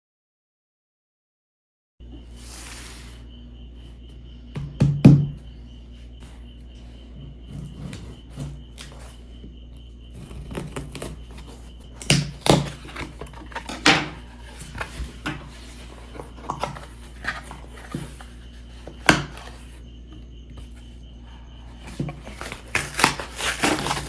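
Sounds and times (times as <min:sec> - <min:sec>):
knocks on cardboard box: 0:04.6 - 0:05.4.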